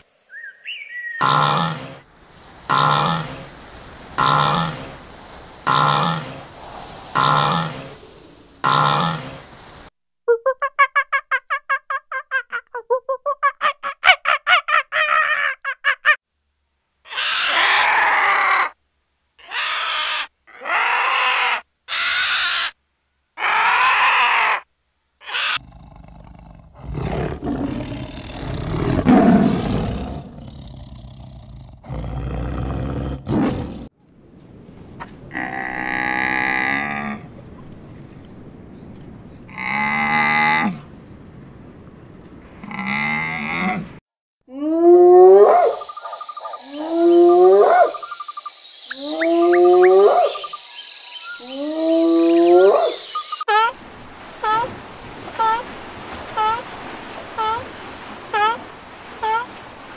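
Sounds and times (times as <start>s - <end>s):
rising and falling animal calls: 5.7s - 9.4s, 17.1s - 18.8s, 19.4s - 22.8s, 23.4s - 31.6s, 44.6s - 53.5s
hissing and rumbling grunts: 25.6s - 33.9s.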